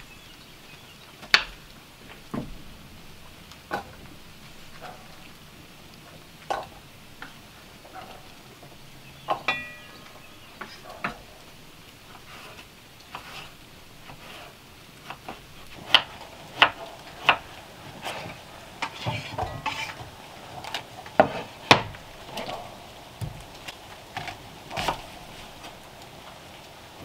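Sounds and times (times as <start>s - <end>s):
hard objects clinking and knocking: 9.3s - 11.2s.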